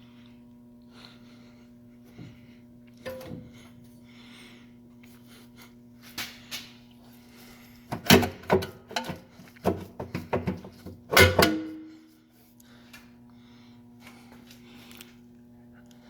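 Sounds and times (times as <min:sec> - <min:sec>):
faint steady hum: 0:00.0 - 0:16.0
metal clanks and knocks: 0:03.1 - 0:03.6, 0:10.4 - 0:11.9.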